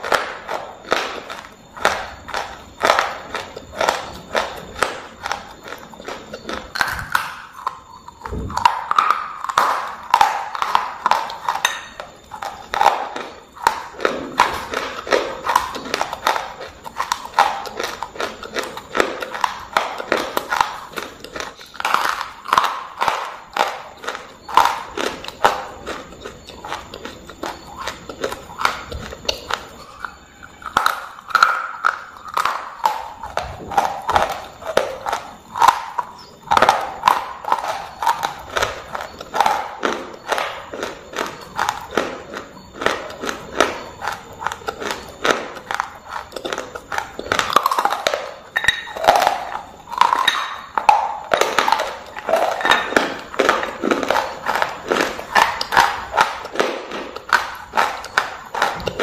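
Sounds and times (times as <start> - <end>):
chewing crunchy shale: 0.0 - 59.0.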